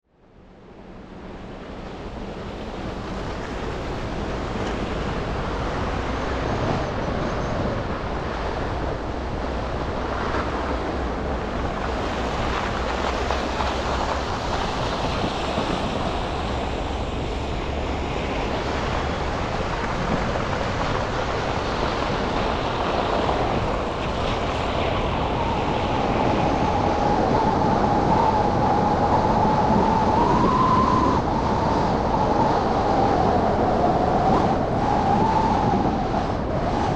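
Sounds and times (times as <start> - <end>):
traffic: 1.0 - 26.2.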